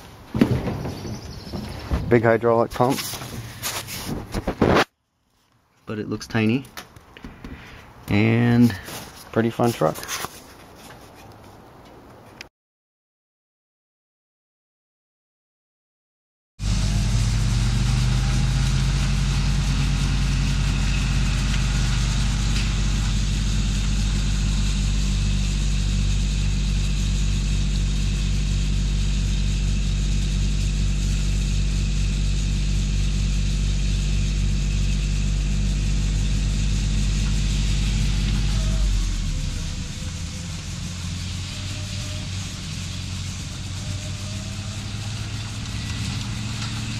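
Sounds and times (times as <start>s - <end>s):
engine running steadily: 16.6s - 46.9s.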